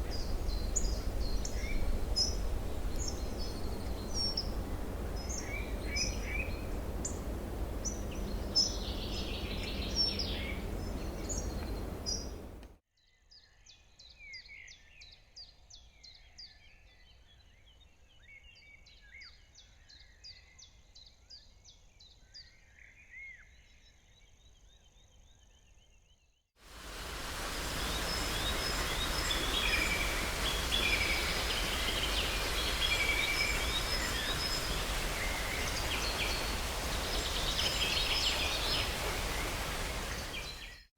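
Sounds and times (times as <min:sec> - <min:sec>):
wild birds singing: 0:00.0 - 0:12.6, 0:26.8 - 0:40.9
outdoor hiss: 0:00.0 - 0:12.8, 0:26.6 - 0:40.9.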